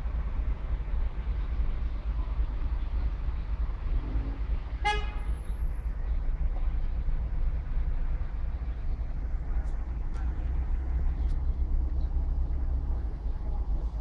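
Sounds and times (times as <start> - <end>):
low outdoor rumble: 0.0 - 14.0
car horn toot: 4.8 - 5.4.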